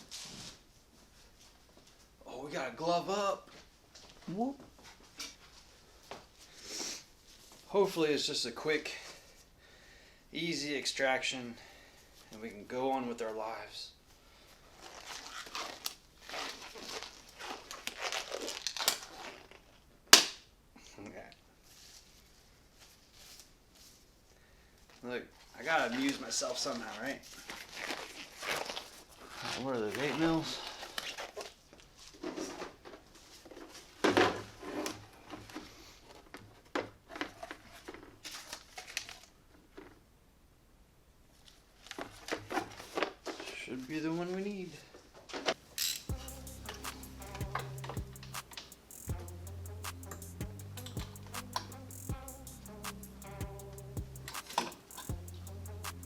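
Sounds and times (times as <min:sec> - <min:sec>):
crinkling and rustling: 0:14.4 - 0:20.1, 0:24.8 - 0:40.1, 0:41.3 - 0:45.8
hand tools clicking and rattling: 0:45.8 - 0:49.3, 0:49.9 - 0:52.2, 0:53.7 - 0:56.0
sharp snap: 0:46.7 - 0:49.2, 0:49.8 - 0:52.2, 0:52.8 - 0:53.3, 0:54.0 - 0:55.2.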